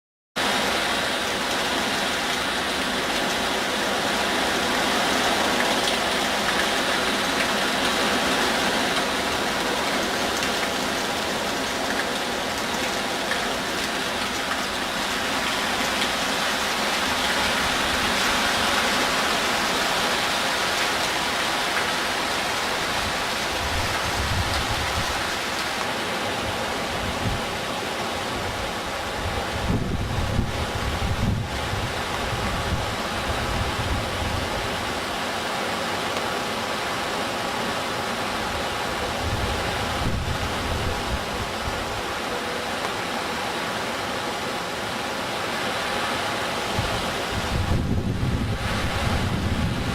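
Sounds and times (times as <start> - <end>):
heavy rain falling: 0.4 - 49.9
wind buffeting microphone: 23.0 - 25.3, 26.9 - 27.6, 28.3 - 34.9, 39.0 - 41.9, 46.7 - 49.9.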